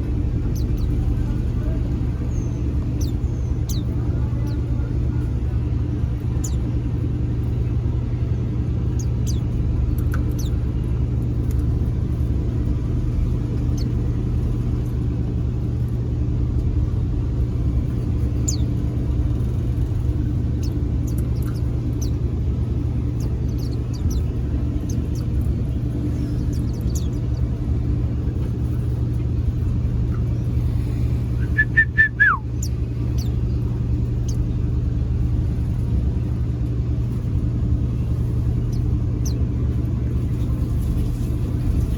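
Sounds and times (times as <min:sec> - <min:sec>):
steady low hum: 0:00.0 - 0:41.9
high bird chirps: 0:23.1 - 0:25.3, 0:31.4 - 0:33.6.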